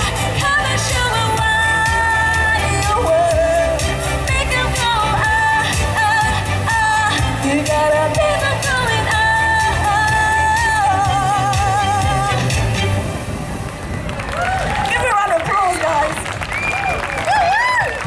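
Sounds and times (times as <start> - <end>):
pop backing track: 0.0 - 13.2.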